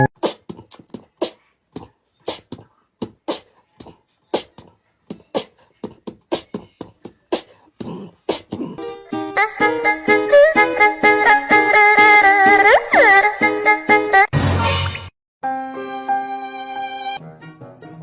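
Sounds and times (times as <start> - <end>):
beatboxing percussive beat: 0.0 - 8.8.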